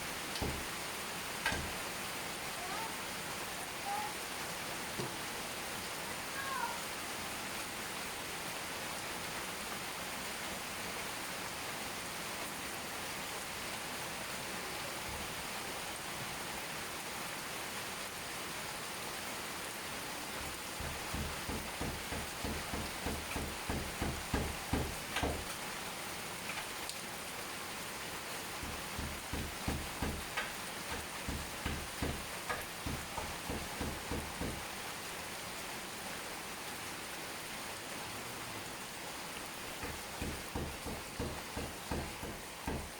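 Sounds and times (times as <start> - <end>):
steady rain falling: 0.0 - 42.9
soft regular thumps: 0.4 - 0.8, 1.4 - 1.8, 20.4 - 25.6, 28.6 - 34.6, 39.7 - 42.9.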